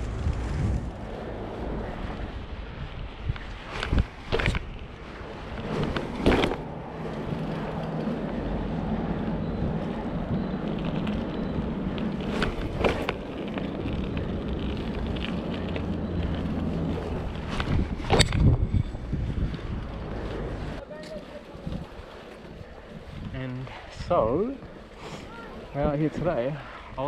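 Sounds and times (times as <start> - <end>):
steady low hum: 0.0 - 3.6
wind rushing over microphone: 0.0 - 20.8, 21.5 - 27.0.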